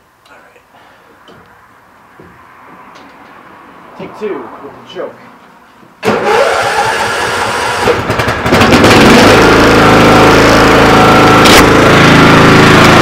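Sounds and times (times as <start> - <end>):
engine starter cranking: 6.0 - 9.4
lawn tractor engine running: 6.0 - 13.0.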